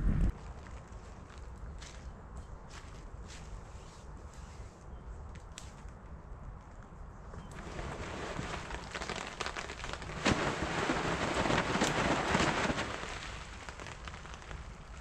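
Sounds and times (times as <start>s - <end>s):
rain pattering: 7.5s - 15.0s.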